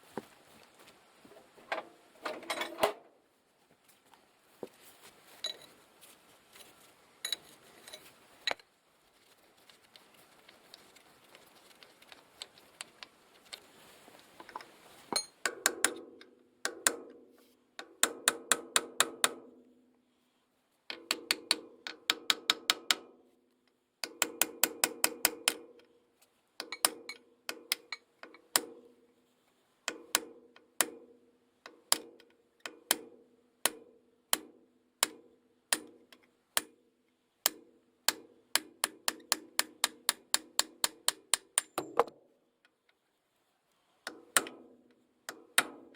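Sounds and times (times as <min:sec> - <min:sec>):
sharp metal taps ringing: 0:15.2 - 0:15.9.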